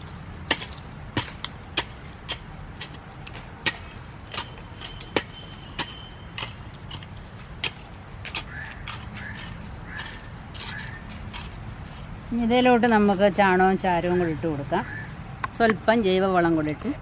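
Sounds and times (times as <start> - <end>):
hand tool knocking soil: 0.0 - 12.1.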